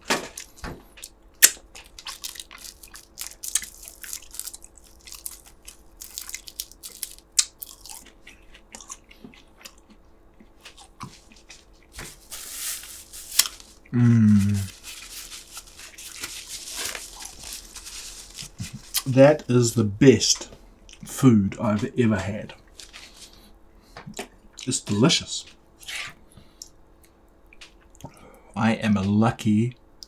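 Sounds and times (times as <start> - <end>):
man chewing and eating: 0.3 - 28.4
man humming: 13.9 - 14.8.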